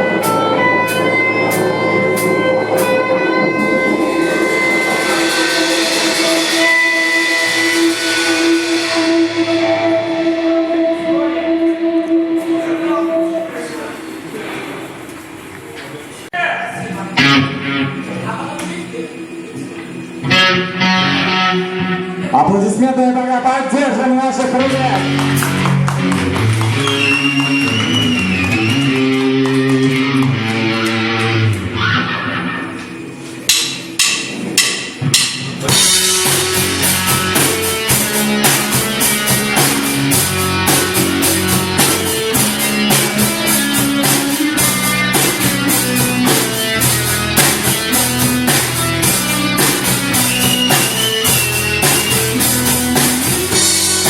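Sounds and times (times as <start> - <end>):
electric guitar chords ringing: 0.0 - 14.4, 17.0 - 54.0
live rock band playing: 0.0 - 15.5, 16.8 - 54.0
cymbals washing: 0.0 - 16.3, 24.6 - 54.0
drum hit: 33.5 - 54.0.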